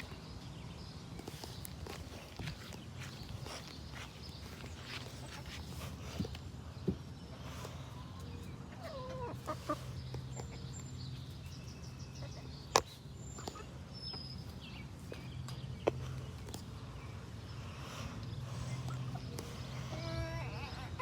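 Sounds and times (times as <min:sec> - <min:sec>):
steady low hum: 0:00.0 - 0:21.0
chickens clucking: 0:01.2 - 0:16.9, 0:18.5 - 0:21.0.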